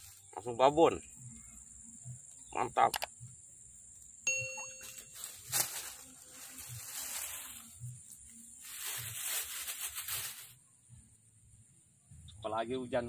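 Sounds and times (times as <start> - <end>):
grass rustling: 0.0 - 1.5, 4.3 - 10.6.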